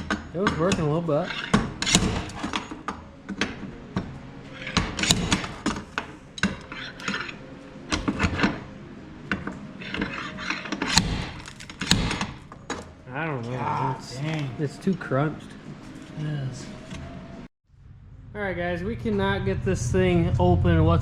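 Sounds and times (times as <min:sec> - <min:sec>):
pry bar scraping sheet metal: 0:09.8 - 0:12.4.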